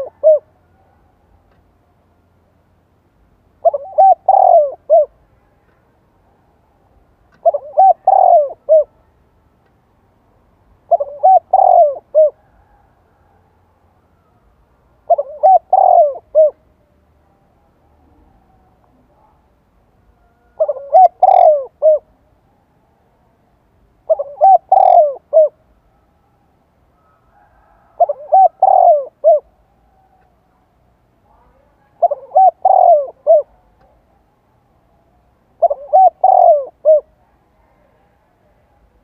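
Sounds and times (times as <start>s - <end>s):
dove cooing: 0.0s - 1.1s, 3.6s - 5.2s, 7.4s - 9.1s, 10.9s - 13.4s, 15.0s - 16.7s, 20.2s - 22.2s, 24.0s - 26.1s, 26.9s - 30.4s, 31.5s - 34.0s, 35.5s - 38.2s.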